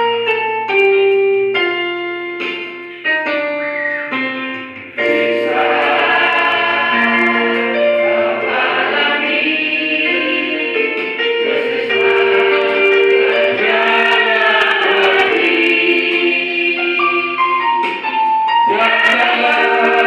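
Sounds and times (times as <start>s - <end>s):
keyboard notes: 0.0s - 20.0s
choir singing: 4.9s - 20.0s.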